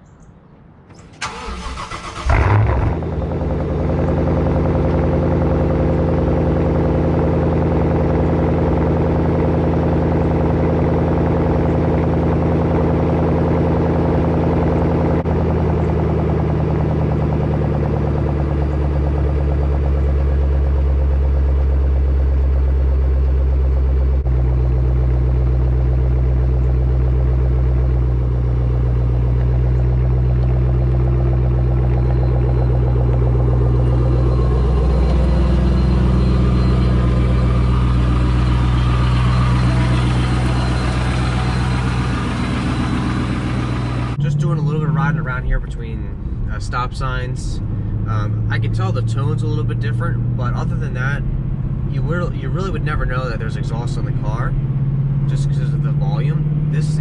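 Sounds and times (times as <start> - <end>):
car engine starting and idling: 0.1 - 57.0
starter motor cranking: 1.0 - 2.6.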